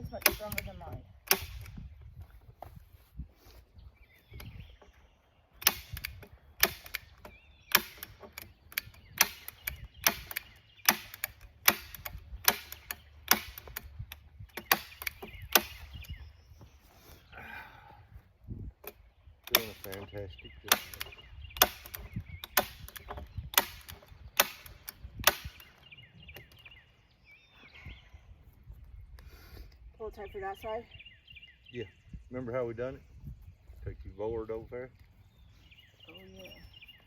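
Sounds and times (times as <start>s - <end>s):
staple gun snapping: 5.6s - 15.9s.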